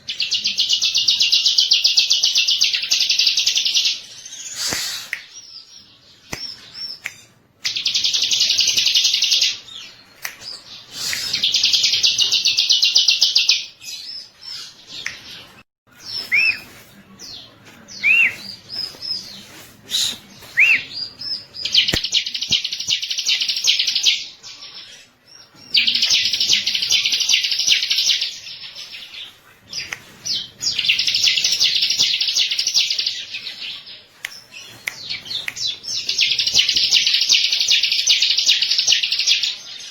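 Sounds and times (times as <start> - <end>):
bird chirps: 0.4 - 16.8.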